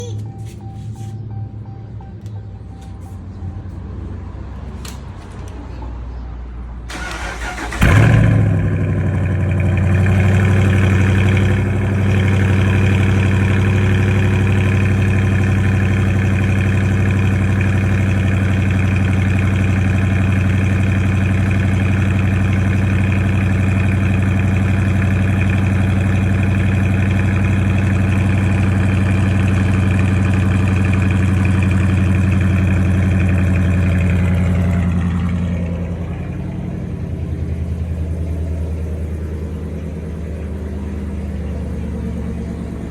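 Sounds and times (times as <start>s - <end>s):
car engine idling: 6.8s - 42.9s
starter motor cranking: 6.9s - 8.4s.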